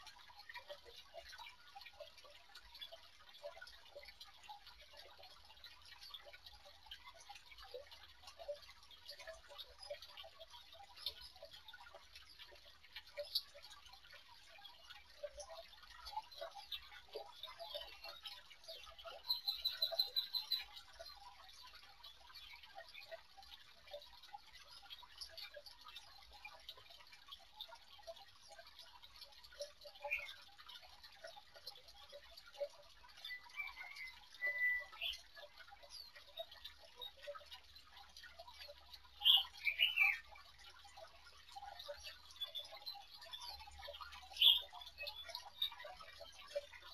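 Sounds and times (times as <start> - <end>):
faint small clicks and ticks: 0.0 - 46.9
bird chirp: 16.2 - 21.0, 29.5 - 30.4, 32.6 - 37.6, 39.2 - 40.4, 41.8 - 46.9.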